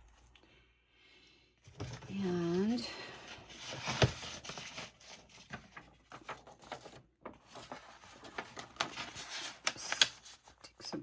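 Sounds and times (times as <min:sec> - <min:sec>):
paper rustling: 0:03.2 - 0:11.0.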